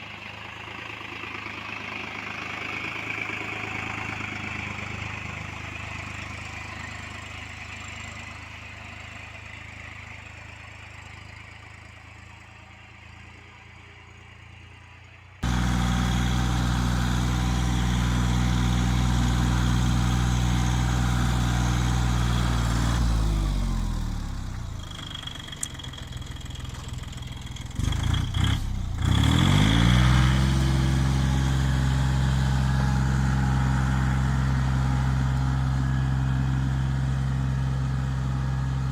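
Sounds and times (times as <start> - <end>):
tractor engine running: 0.0 - 38.9
engine knocks: 15.4 - 29.4.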